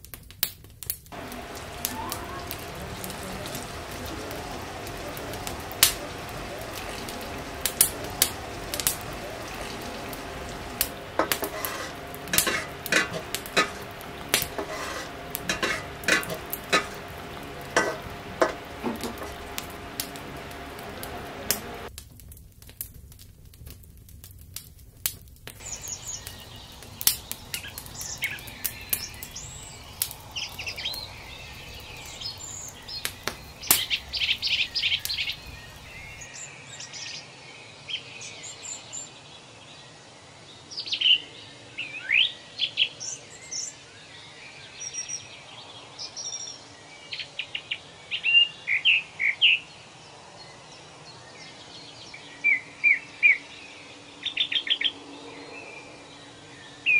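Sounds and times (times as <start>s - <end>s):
small birds chirping: 1.1s - 21.9s, 25.6s - 56.9s
sharp clicks and knocks: 10.8s - 21.9s.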